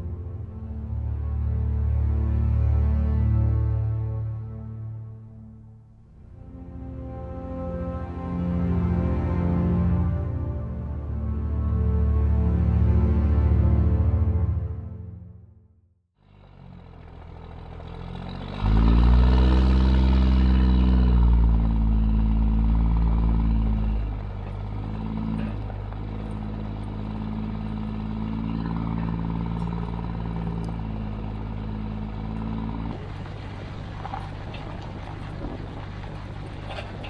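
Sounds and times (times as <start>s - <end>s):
truck engine running: 16.2s - 37.0s.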